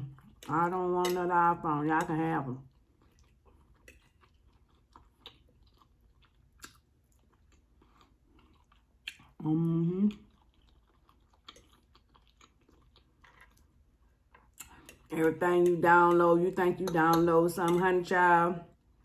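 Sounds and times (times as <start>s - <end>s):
person chewing food: 2.6s - 9.4s, 10.1s - 15.8s.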